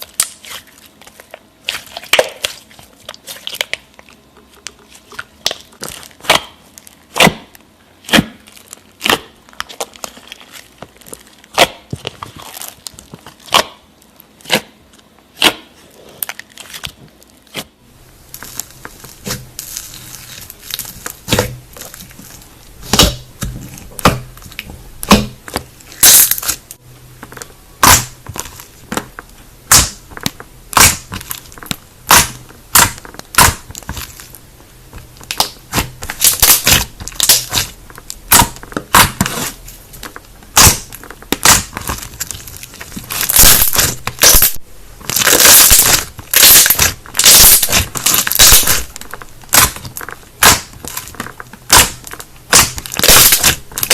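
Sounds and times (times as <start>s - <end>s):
low steady hum: 0.0s - 53.9s
slime squished with popping: 27.8s - 34.4s, 35.0s - 53.9s.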